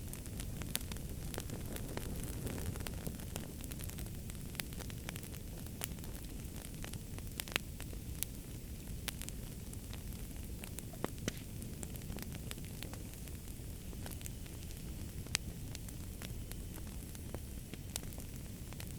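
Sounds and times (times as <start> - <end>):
wood fire crackling and popping: 0.0 - 18.9.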